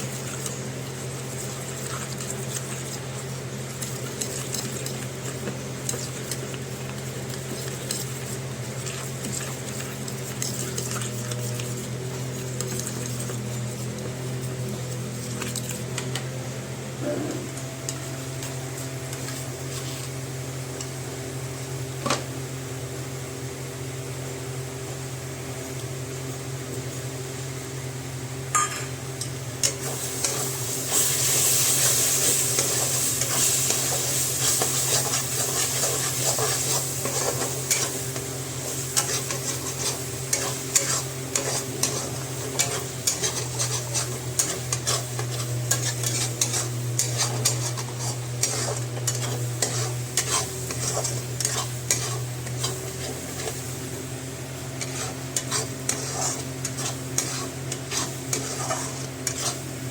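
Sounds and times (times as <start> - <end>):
metal spoon scraping a pan: 29.6 - 53.6, 54.8 - 59.7
food sizzling in a pan: 29.6 - 59.9.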